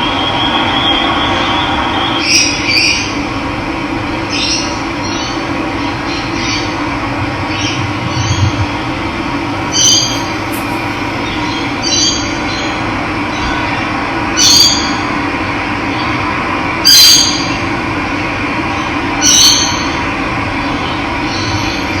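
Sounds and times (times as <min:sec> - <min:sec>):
short high bird call: 0:09.6 - 0:12.1.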